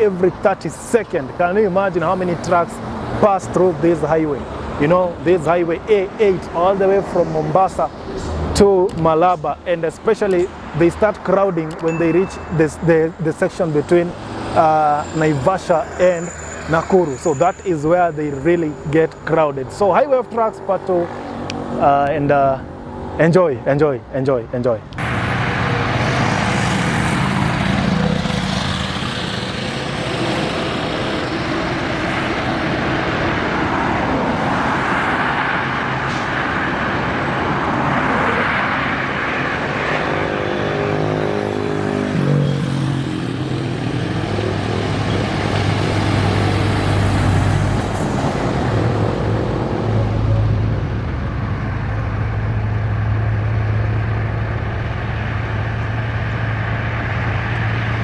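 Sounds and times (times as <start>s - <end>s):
diesel engines: 0.0s - 58.0s
highway traffic tyre roar: 0.0s - 58.0s.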